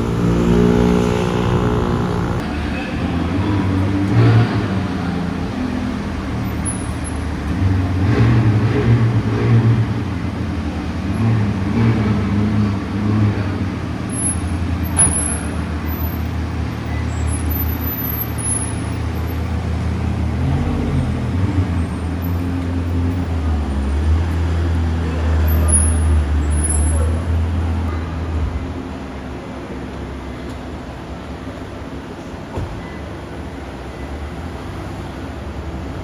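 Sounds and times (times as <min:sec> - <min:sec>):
car engines in traffic: 0:00.0 - 0:36.0.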